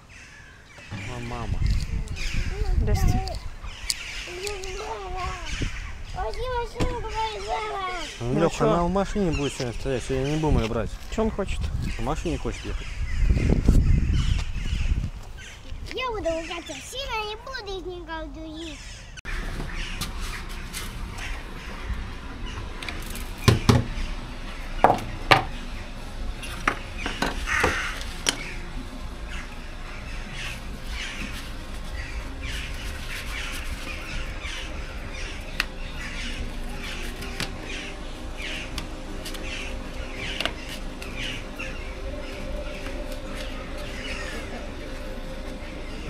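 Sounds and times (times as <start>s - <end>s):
birds calling harshly: 0.0s - 46.0s
loud knocks: 23.4s - 24.0s.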